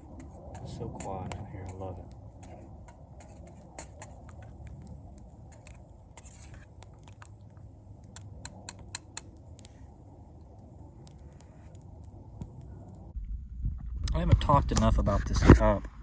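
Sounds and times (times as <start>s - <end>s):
twig fire crackling: 0.0s - 15.0s
faint low rumble: 9.4s - 16.0s.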